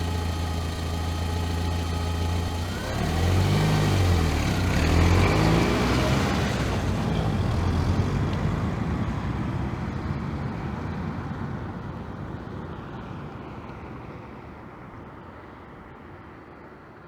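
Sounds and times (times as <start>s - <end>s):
car driving off: 0.0s - 11.4s.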